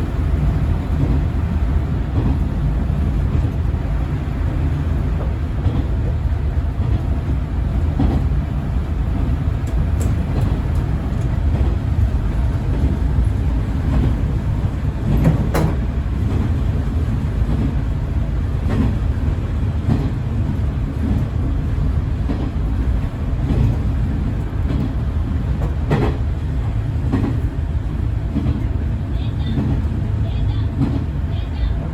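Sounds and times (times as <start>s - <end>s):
railcar engine and rail rumble: 0.0s - 31.9s
wheels knocking on track: 13.8s - 16.6s.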